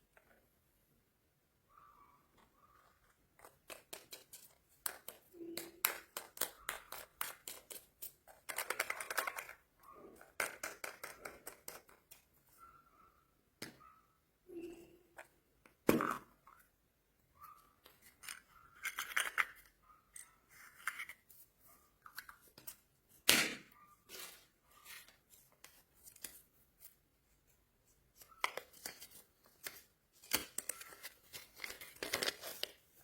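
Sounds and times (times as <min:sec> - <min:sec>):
plastic wrappers crinkling: 0:28.2 - 0:33.0.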